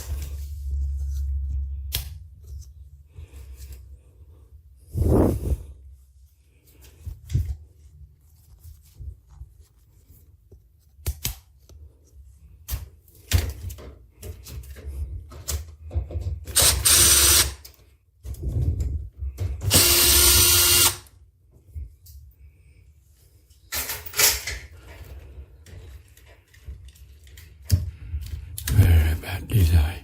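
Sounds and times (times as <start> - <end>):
clicks and knocks of parts: 12.6 - 16.8, 23.7 - 28.7
power screwdriver running: 16.6 - 17.6, 19.7 - 21.1.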